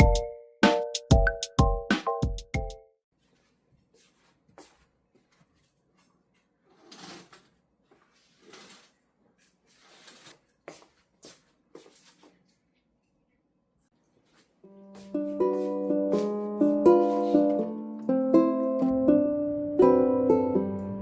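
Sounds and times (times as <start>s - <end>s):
soft rustles: 3.2s - 13.0s, 13.9s - 17.7s.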